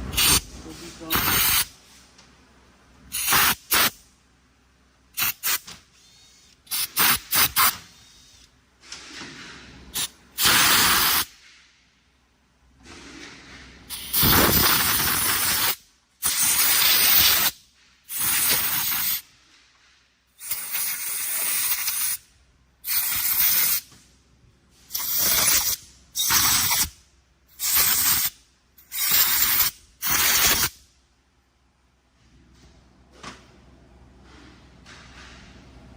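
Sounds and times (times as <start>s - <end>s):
compressed air blowgun blasts: 3.1s - 4.0s, 5.2s - 5.7s, 6.6s - 8.0s, 9.9s - 11.4s, 13.9s - 19.3s, 24.9s - 26.9s, 27.6s - 30.8s.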